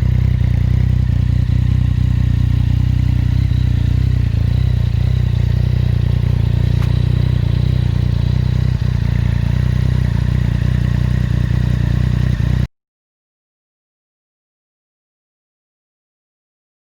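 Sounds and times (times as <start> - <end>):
motorcycle engine idling: 0.0 - 12.7.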